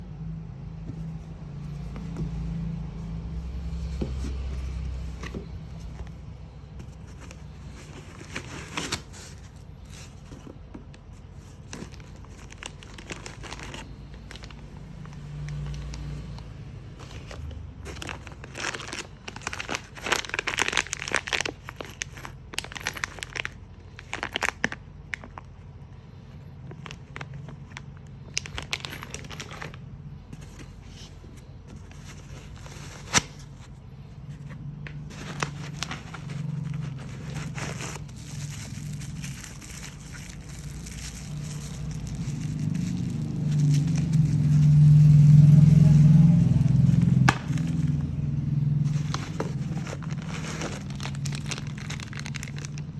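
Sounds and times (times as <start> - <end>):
low vehicle hum: 0.0 - 52.9
packaging crinkling and tearing: 6.8 - 25.5, 26.7 - 29.8, 35.0 - 52.9.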